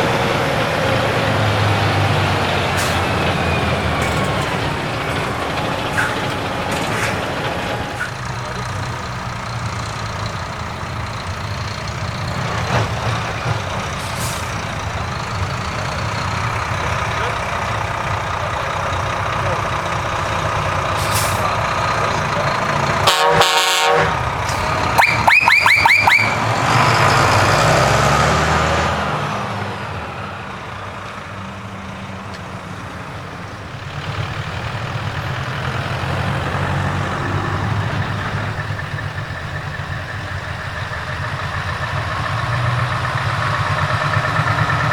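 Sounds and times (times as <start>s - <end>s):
trucks driving past: 0.0s - 44.9s
truck horn blasts and toots: 23.0s - 26.6s.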